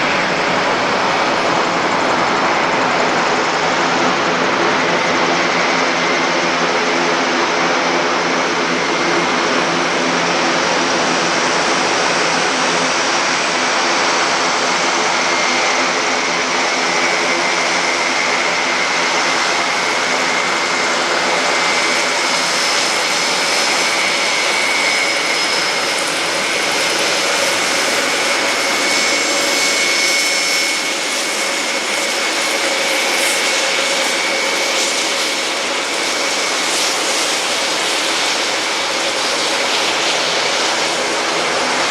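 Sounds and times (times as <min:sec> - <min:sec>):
high engine whine: 0:00.0 - 0:07.3, 0:16.2 - 0:41.9
propeller drone: 0:00.0 - 0:41.9.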